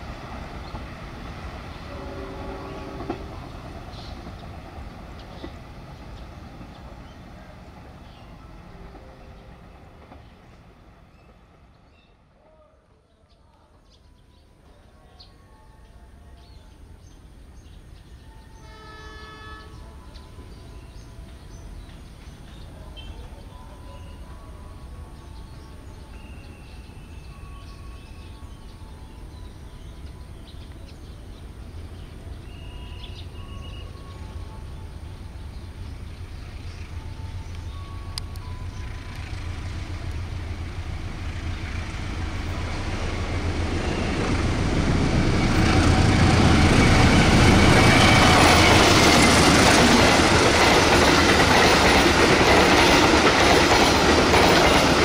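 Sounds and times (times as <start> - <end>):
diesel train engine and wheel rumble: 0.0 - 12.9, 14.5 - 55.0
train horn: 1.7 - 4.1, 18.0 - 21.4, 42.7 - 49.3.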